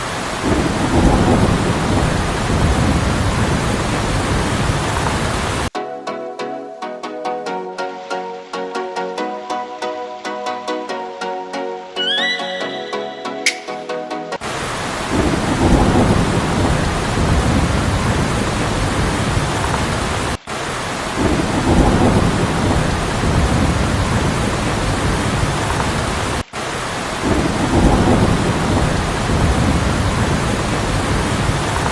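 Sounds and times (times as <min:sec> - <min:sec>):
heavy rain: 0:00.0 - 0:05.8, 0:14.4 - 0:31.9
thunder rumbling: 0:00.4 - 0:05.7, 0:15.1 - 0:19.9, 0:21.2 - 0:26.0, 0:27.2 - 0:31.9.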